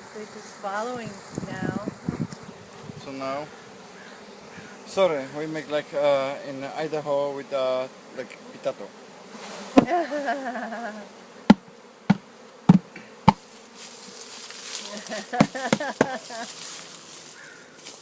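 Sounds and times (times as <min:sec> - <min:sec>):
honeybees buzzing: 0:00.0 - 0:18.0
sharp knocks: 0:11.5 - 0:13.4.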